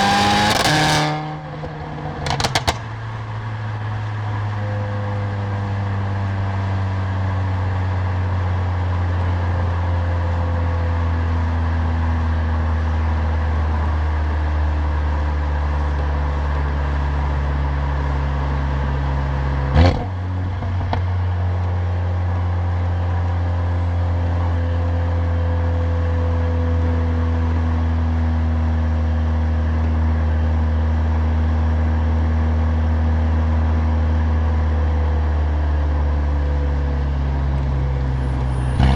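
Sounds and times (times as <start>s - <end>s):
exhaust crack: 0.0s - 4.6s
car engine and exhaust droning: 0.0s - 38.9s.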